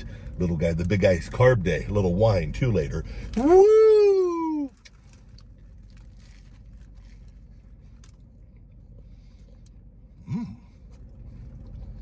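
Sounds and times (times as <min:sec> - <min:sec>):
man chewing: 0:04.8 - 0:12.0.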